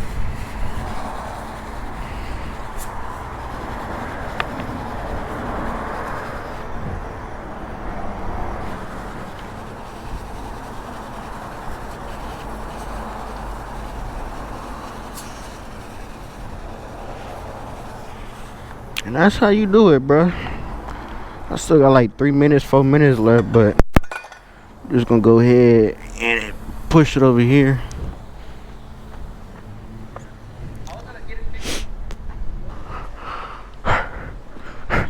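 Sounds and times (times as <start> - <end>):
pressure washer spraying: 0.0 - 19.7, 24.5 - 30.6.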